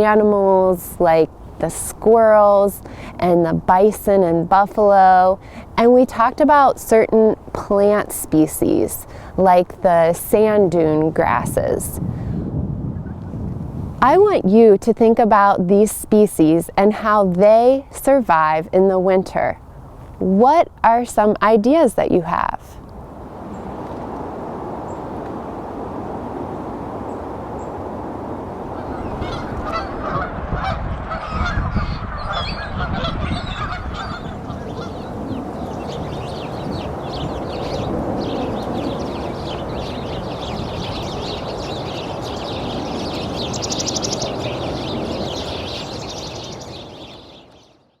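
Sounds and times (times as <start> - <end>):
geese honking: 28.7 - 47.0.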